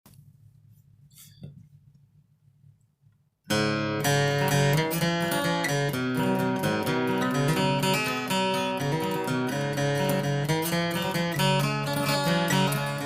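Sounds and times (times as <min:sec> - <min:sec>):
acoustic guitar playing: 0:03.5 - 0:13.0.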